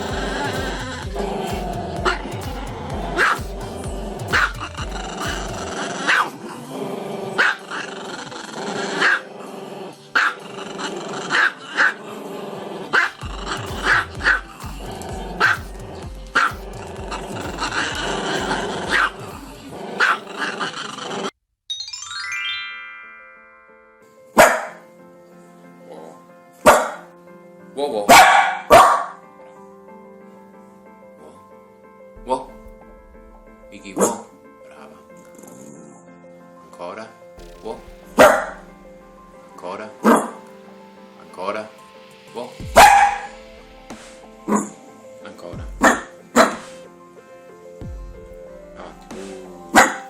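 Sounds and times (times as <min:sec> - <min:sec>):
background music with beat: 0:00.0 - 0:06.1, 0:13.0 - 0:20.0, 0:32.2 - 0:34.5, 0:37.4 - 0:50.0
dog barking: 0:24.4 - 0:24.8, 0:26.6 - 0:27.1, 0:28.0 - 0:29.2, 0:42.8 - 0:43.3, 0:45.8 - 0:46.6, 0:49.8 - 0:50.0.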